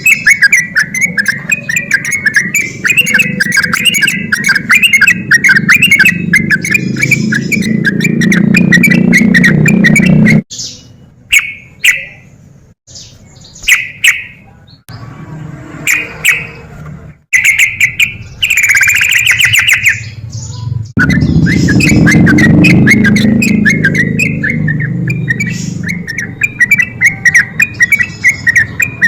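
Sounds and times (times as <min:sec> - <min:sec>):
bird chattering: 0:00.0 - 0:12.4, 0:15.8 - 0:29.0
bubbling bird notes: 0:21.0 - 0:29.0.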